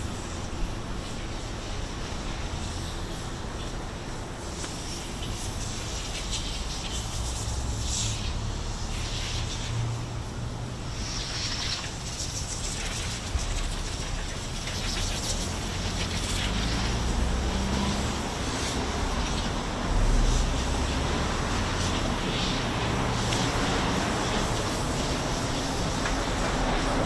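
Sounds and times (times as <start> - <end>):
city traffic rumble: 0.0 - 27.0.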